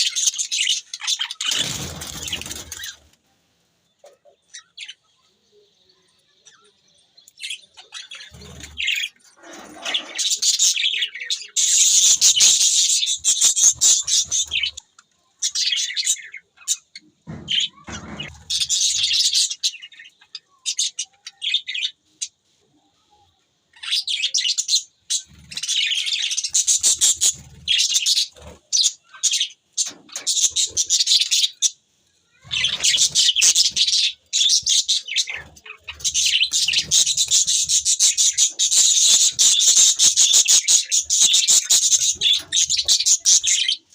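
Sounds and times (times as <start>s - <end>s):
budgerigars chirping: 32.5s - 43.8s.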